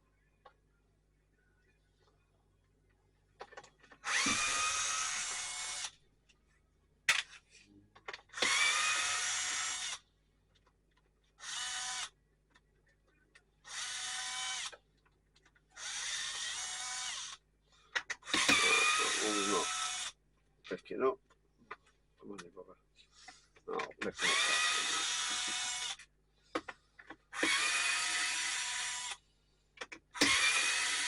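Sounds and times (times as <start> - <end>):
power drill motor whine: 4.0 - 6.0, 8.3 - 10.0, 11.4 - 12.2, 13.6 - 14.8, 15.8 - 17.4, 18.3 - 20.2, 24.2 - 26.1, 27.1 - 29.2, 30.2 - 31.0
screw clicks: 17.9 - 19.2, 29.8 - 31.0.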